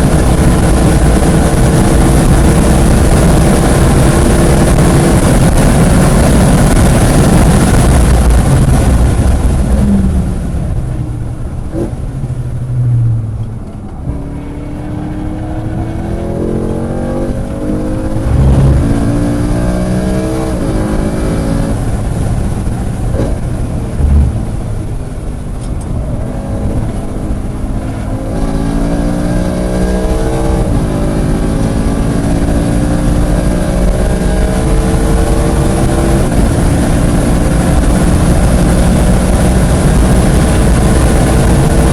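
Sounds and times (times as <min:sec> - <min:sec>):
car engine revving through gears: 0:12.8 - 0:22.2, 0:23.0 - 0:41.9.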